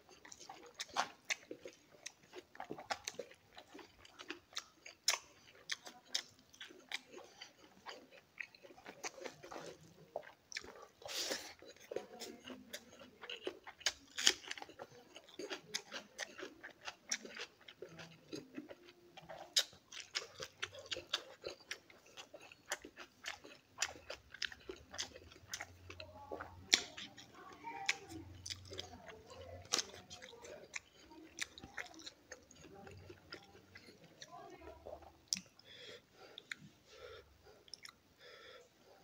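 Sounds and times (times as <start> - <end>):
close-up chewing: 0.0 - 39.0.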